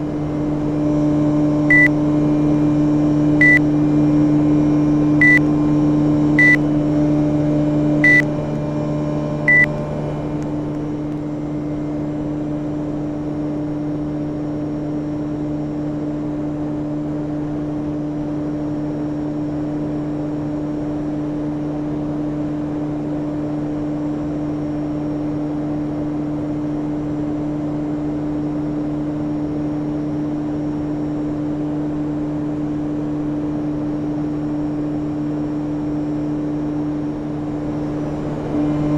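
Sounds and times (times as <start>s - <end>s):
air conditioner humming: 0.0s - 11.6s
short electronic beeps: 1.7s - 1.9s, 3.4s - 3.6s, 5.2s - 5.4s, 6.4s - 6.6s, 8.0s - 8.3s, 9.5s - 9.7s.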